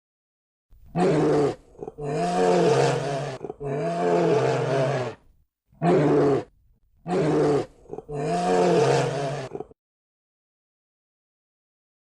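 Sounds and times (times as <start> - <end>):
lioness roaring: 0.9 - 5.2, 5.8 - 9.8.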